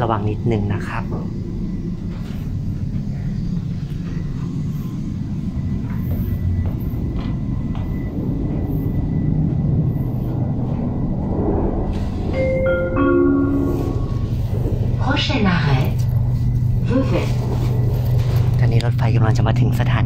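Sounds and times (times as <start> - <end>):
train wheels rumbling on track: 2.0 - 19.0
faint steady high tone: 12.3 - 16.0.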